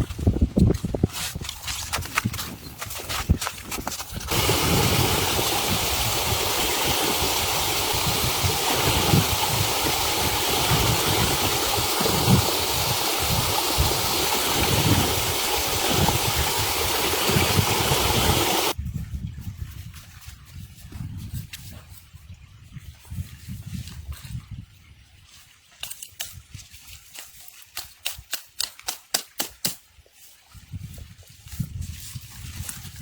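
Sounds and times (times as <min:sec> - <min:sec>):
blizzard wind buffeting microphone: 0:00.0 - 0:24.7.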